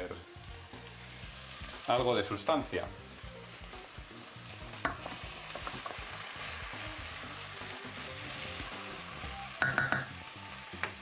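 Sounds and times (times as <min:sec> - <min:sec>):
food sizzling in hot oil: 0:00.0 - 0:11.0
spoon clicking in pot: 0:09.6 - 0:10.1.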